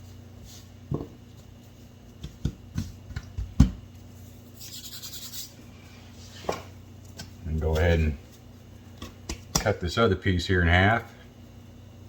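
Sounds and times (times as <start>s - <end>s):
knocks on kitchen surface: 2.2s - 3.8s.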